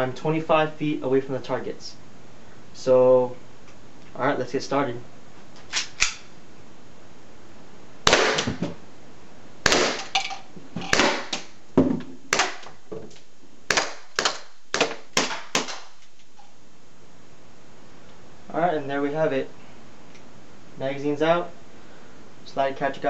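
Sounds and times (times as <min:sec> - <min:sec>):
airsoft pistol shots: 0:08.0 - 0:08.6, 0:09.6 - 0:10.1, 0:10.9 - 0:11.5, 0:12.3 - 0:12.6, 0:13.7 - 0:15.9.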